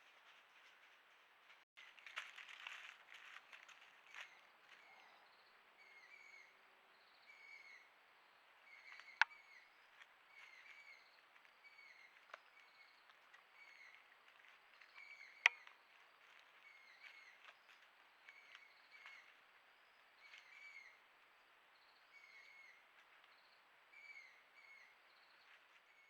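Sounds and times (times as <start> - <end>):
bird chirping: 4.1 - 15.9, 21.7 - 26.0.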